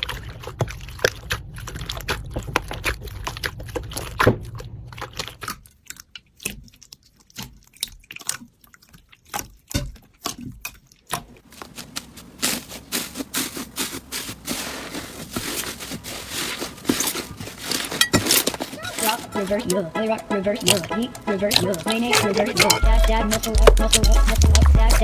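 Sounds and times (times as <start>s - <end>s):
slime squishing with sticky crackles: 0.0s - 19.4s.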